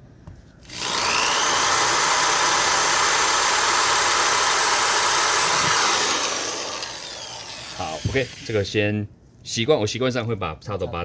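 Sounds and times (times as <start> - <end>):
electric drill whining: 0.6 - 8.6.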